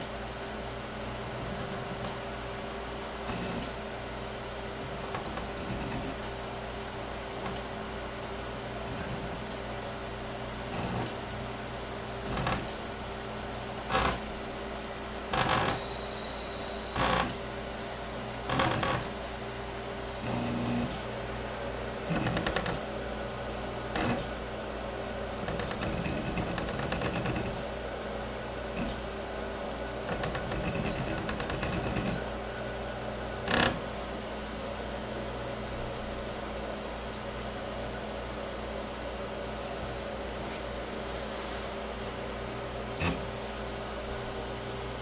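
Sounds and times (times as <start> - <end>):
steady hum: 0.0 - 45.0
stepper motors buzzing: 3.2 - 3.7, 10.7 - 11.2, 12.2 - 12.8, 13.9 - 14.3, 15.3 - 17.4, 18.4 - 19.2, 20.2 - 21.0, 22.1 - 22.8, 23.9 - 24.3, 25.4 - 27.6, 30.0 - 32.3.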